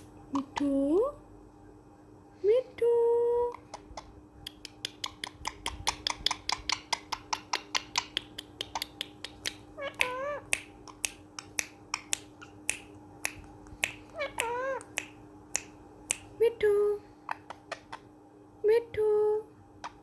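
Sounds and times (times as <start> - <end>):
parrot kissing clicks: 4.0 - 16.3
parrot warbling call: 9.8 - 10.5, 14.1 - 15.0.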